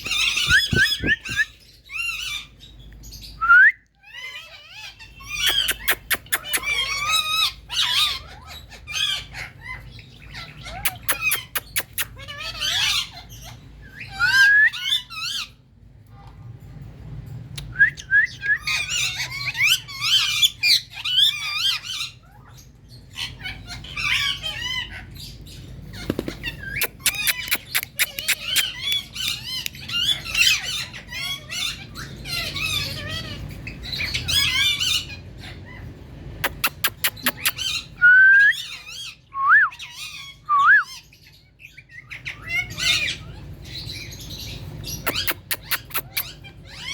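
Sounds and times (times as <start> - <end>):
parakeets chattering and squawking: 0.0 - 46.9
sharp clicks: 36.4 - 37.5.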